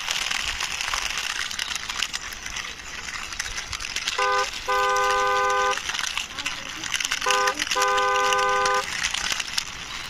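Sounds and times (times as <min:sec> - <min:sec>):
toy wheels scraping gritty surface: 0:00.0 - 0:10.0
car horn beeps: 0:04.2 - 0:05.8, 0:07.2 - 0:08.9.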